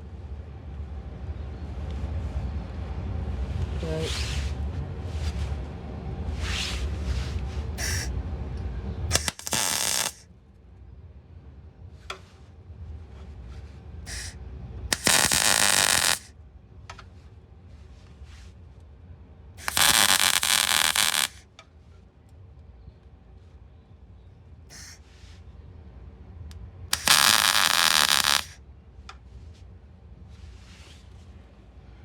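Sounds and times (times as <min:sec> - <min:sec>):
welding crackle: 0:07.8 - 0:08.1, 0:09.1 - 0:10.2, 0:14.1 - 0:16.3, 0:19.6 - 0:21.4, 0:24.7 - 0:25.0, 0:26.9 - 0:28.6.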